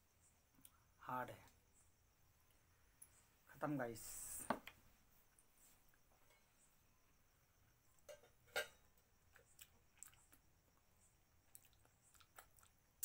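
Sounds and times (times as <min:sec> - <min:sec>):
person chewing: 0:09.3 - 0:10.4, 0:11.5 - 0:13.0
mouth clicks and smacks: 0:09.4 - 0:10.4, 0:11.5 - 0:13.0.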